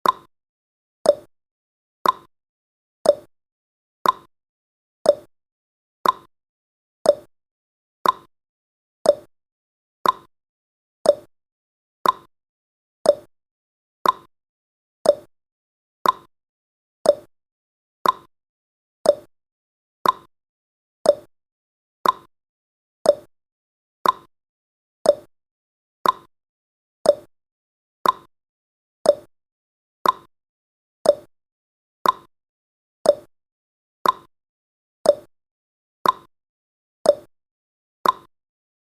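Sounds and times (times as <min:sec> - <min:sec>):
countdown timer ticking: 0:01.1 - 0:01.3, 0:05.1 - 0:05.3, 0:07.1 - 0:07.3, 0:09.1 - 0:09.3, 0:11.1 - 0:11.3, 0:13.1 - 0:13.3, 0:15.1 - 0:15.3, 0:17.1 - 0:17.3, 0:18.0 - 0:18.3, 0:19.1 - 0:19.3, 0:21.1 - 0:21.3, 0:23.1 - 0:23.3, 0:25.1 - 0:25.3, 0:26.0 - 0:26.3, 0:27.1 - 0:27.3, 0:28.0 - 0:28.3, 0:29.1 - 0:29.3, 0:30.0 - 0:30.3, 0:31.1 - 0:31.3, 0:32.0 - 0:32.3, 0:33.1 - 0:33.3, 0:34.0 - 0:34.3, 0:35.1 - 0:35.3, 0:36.0 - 0:36.3, 0:37.1 - 0:37.3, 0:38.0 - 0:38.3.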